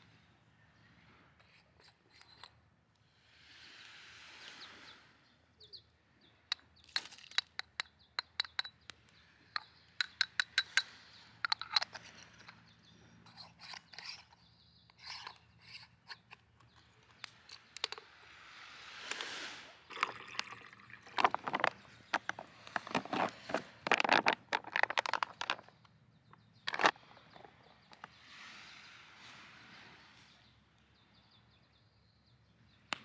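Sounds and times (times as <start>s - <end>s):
camping gear clicks and knocks: 6.8s - 8.8s, 13.2s - 18.1s, 21.1s - 28.1s.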